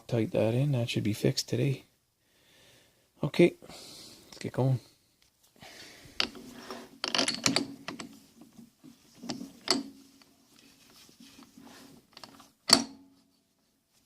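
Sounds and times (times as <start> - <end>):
metal tools clicking and clinking: 6.2 - 8.2, 9.2 - 10.3, 12.1 - 13.0.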